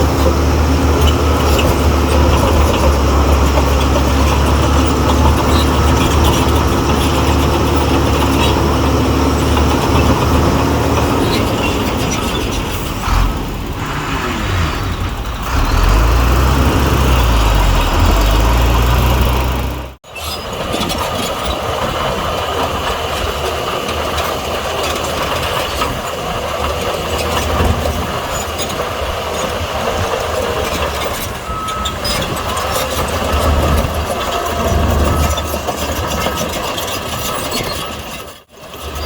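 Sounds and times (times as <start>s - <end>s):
diesel earthmoving machinery running: 0.0s - 39.0s.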